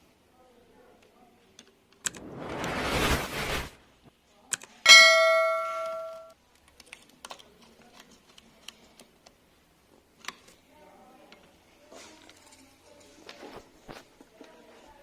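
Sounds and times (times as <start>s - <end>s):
rush of noise: 2.0s - 3.8s
metal struck ringing: 4.9s - 6.3s
light clicks and taps: 6.5s - 9.4s.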